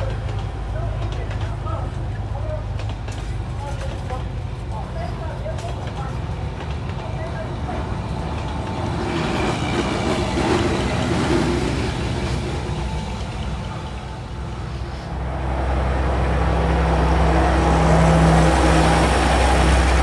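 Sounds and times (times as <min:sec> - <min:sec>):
vehicle noise: 0:07.9 - 0:20.0
low engine hum: 0:10.8 - 0:20.0.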